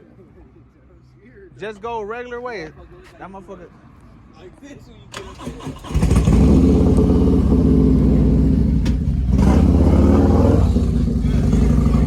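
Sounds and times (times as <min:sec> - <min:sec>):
vehicle engine running loudly: 0:06.0 - 0:12.0.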